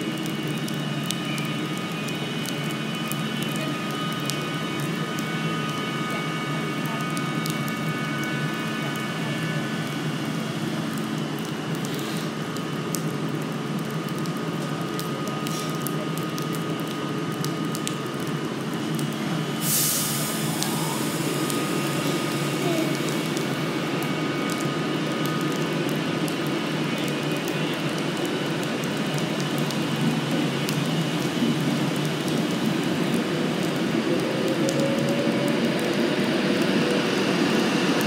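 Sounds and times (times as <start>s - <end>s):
short hiss: 19.6s - 20.4s.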